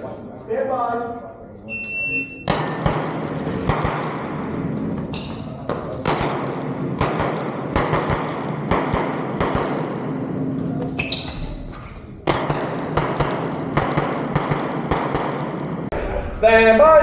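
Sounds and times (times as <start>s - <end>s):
pistol shots: 2.4s - 11.1s, 12.0s - 15.9s.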